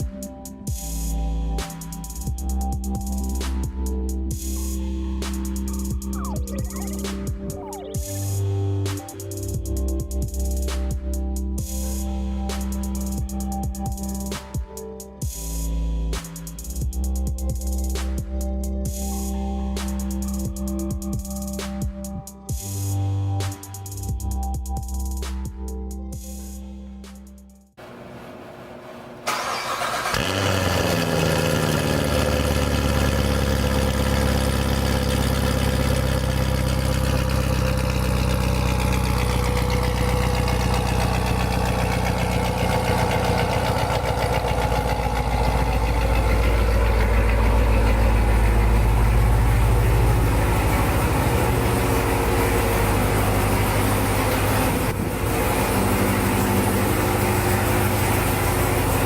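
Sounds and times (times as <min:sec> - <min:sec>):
car engine starting and idling: 0:27.8 - 0:59.0
high engine whine: 0:27.8 - 0:59.0.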